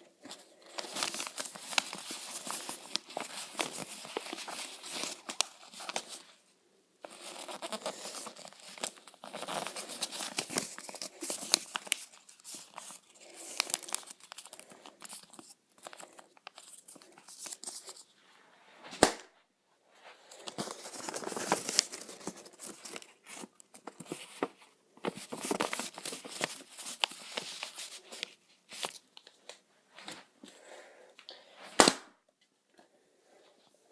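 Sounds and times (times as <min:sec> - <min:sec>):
paper crinkling and rustling: 0:00.1 - 0:06.4, 0:07.0 - 0:18.1, 0:20.2 - 0:30.5
sharp paper crack: 0:00.7 - 0:06.3, 0:07.1 - 0:17.9.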